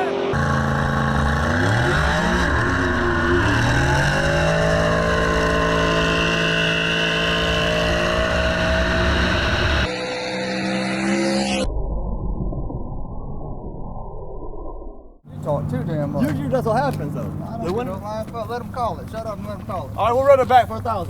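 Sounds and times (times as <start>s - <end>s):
race car engine accelerating: 0.0s - 11.7s.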